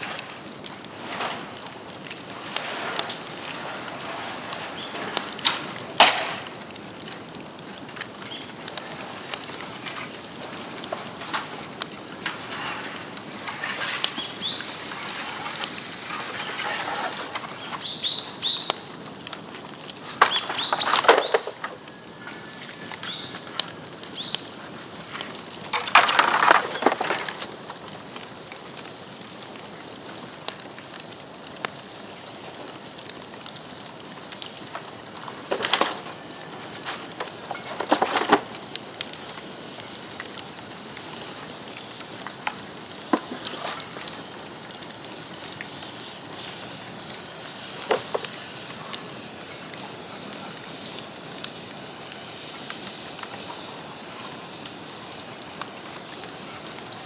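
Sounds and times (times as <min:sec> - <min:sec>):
bamboo crackling in a fire: 0:00.0 - 0:57.0.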